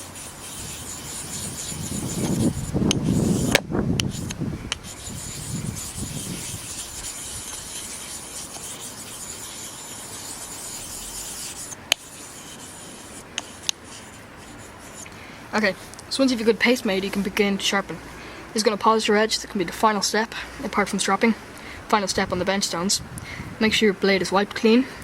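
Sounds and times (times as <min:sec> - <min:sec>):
stone scraping on wet stone: 0:00.0 - 0:15.1.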